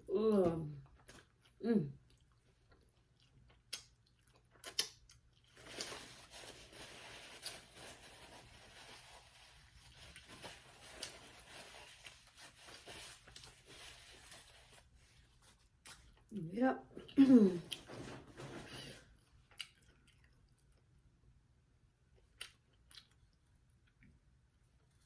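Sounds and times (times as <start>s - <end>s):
crinkling and rustling: 5.5s - 16.3s, 17.5s - 19.5s.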